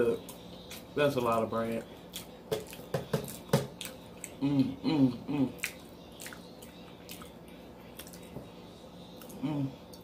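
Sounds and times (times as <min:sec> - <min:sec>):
closed-mouth hums: 0:03.3 - 0:10.0
close-miked chewing: 0:05.4 - 0:08.4, 0:09.1 - 0:10.0.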